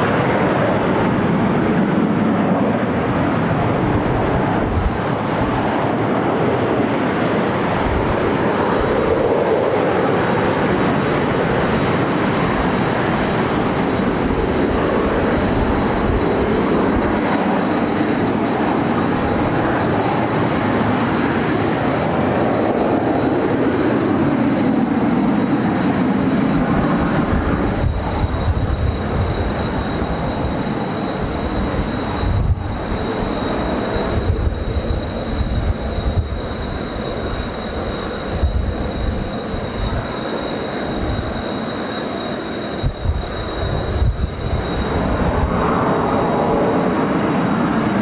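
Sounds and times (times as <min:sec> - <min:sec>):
wind buffeting microphone: 0:00.0 - 0:10.1, 0:26.0 - 0:41.5, 0:42.6 - 0:46.7
jet planes passing overhead: 0:00.0 - 0:48.0.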